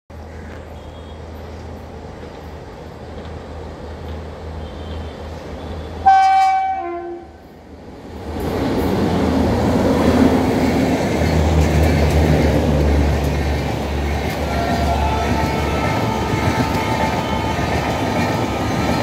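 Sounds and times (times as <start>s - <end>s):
train rushing past: 1.2s - 19.0s
locomotive horn blast: 5.9s - 7.4s, 14.0s - 19.0s.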